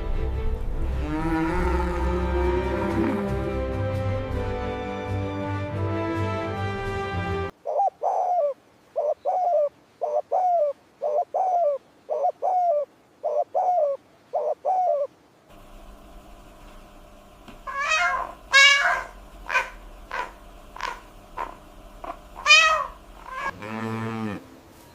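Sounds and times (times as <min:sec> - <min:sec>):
bird calling in two-note phrases: 0:17.6 - 0:23.5
cat meowing loudly: 0:17.7 - 0:21.0, 0:22.4 - 0:23.5.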